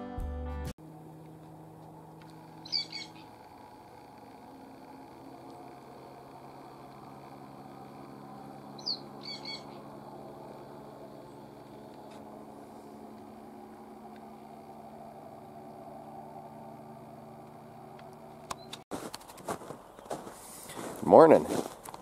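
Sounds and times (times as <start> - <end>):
steady low hum: 0.8 - 22.0
bird chirps: 2.5 - 3.3, 8.7 - 9.9.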